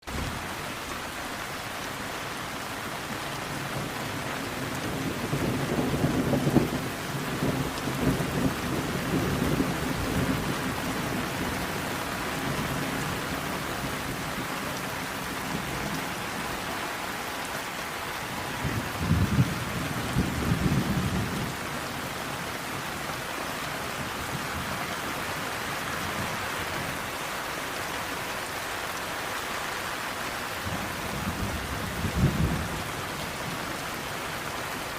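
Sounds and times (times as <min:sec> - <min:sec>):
steady rain: 0:00.0 - 0:34.9
low rolls of thunder: 0:04.6 - 0:11.7, 0:18.4 - 0:21.7, 0:30.7 - 0:33.6.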